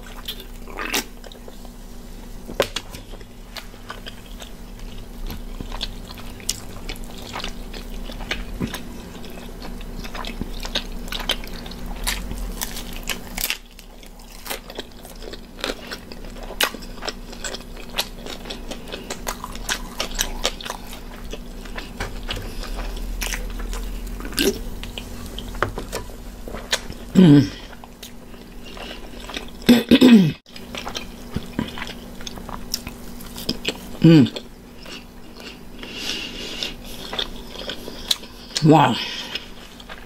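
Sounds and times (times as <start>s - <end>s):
pizza crust crunching: 2.4s - 29.7s, 30.5s - 40.0s.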